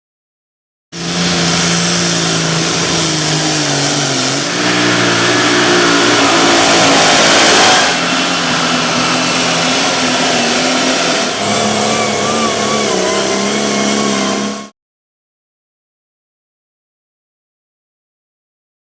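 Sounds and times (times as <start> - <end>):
tractor engines at high revs: 1.0 - 14.7.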